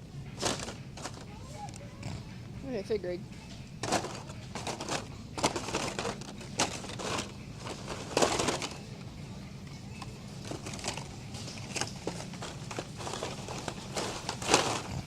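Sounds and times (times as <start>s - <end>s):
toy cars rummaged in a bin: 0.4s - 1.4s, 3.8s - 8.9s, 10.4s - 15.0s.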